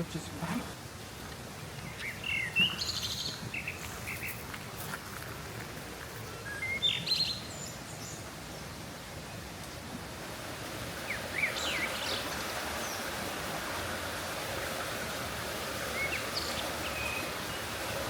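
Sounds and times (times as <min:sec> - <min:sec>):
small birds chirping: 0:01.2 - 0:04.6, 0:06.2 - 0:09.4, 0:11.0 - 0:13.2, 0:15.8 - 0:18.0.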